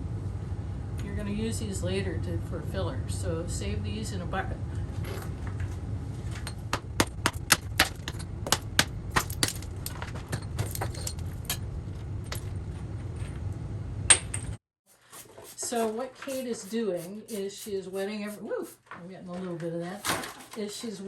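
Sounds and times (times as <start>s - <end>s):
steady low hum: 0.0s - 18.8s
metal clinking on stone: 9.2s - 11.6s
metal tool scraping mortar: 14.9s - 18.8s.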